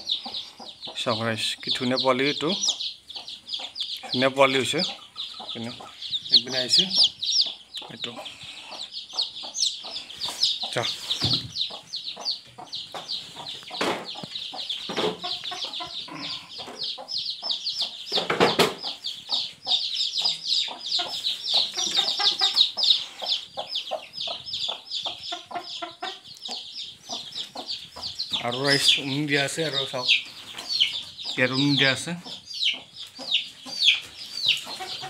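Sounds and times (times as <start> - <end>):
chicks peeping: 0.0 - 35.0
hen clucking: 0.0 - 35.0
scattered knocks: 13.8 - 14.2, 14.9 - 15.3, 18.1 - 19.0.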